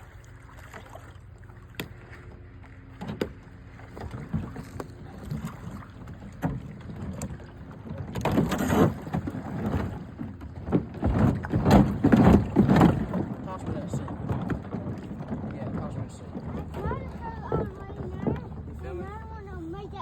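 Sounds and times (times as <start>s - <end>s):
water splashing: 0.0s - 20.0s
plastic boat knocking: 1.8s - 20.0s
boat scraping on ice: 7.5s - 20.0s.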